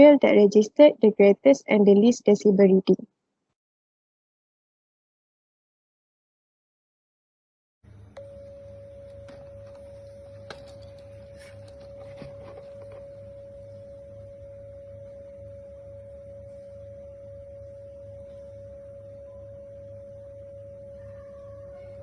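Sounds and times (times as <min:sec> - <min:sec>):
low background hum: 0:00.0 - 0:03.0, 0:07.9 - 0:22.0.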